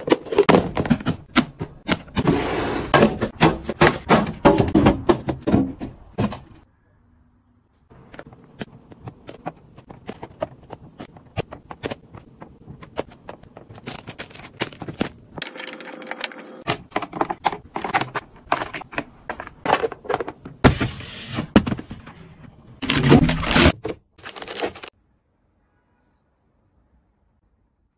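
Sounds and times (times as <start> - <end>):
containers clicking and knocking: 8.1 - 20.6
packaging rustling: 12.9 - 15.8, 22.8 - 24.9.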